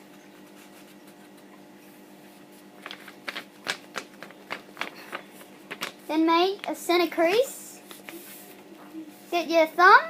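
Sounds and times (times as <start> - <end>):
paper rustling and crinkling: 2.4 - 9.3.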